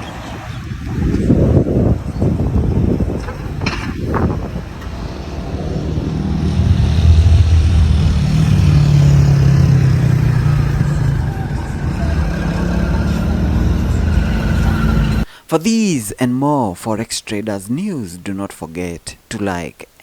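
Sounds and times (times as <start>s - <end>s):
car engine running: 3.4s - 15.2s.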